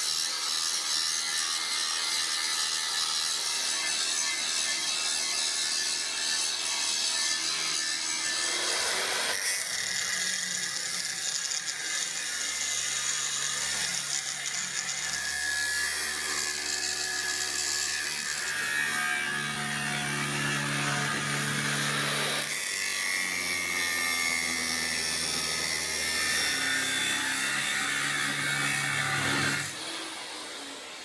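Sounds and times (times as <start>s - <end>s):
shop tool working steel: 0.0s - 31.0s.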